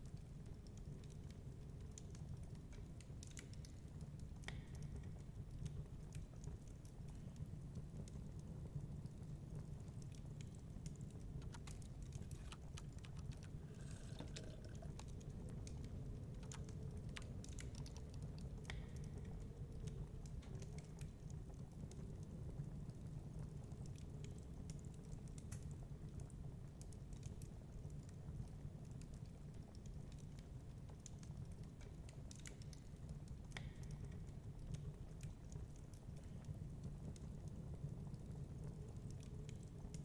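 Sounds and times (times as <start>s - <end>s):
wood fire crackling and popping: 0.0s - 40.0s.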